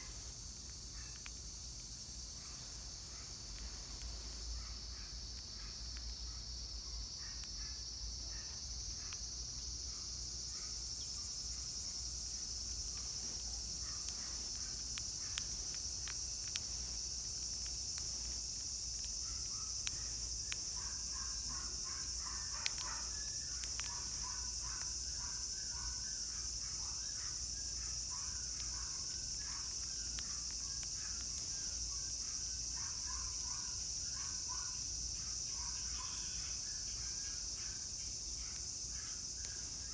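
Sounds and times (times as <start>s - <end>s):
cicadas droning: 0.0s - 39.9s
faint clicks: 0.6s - 2.6s, 12.8s - 25.3s.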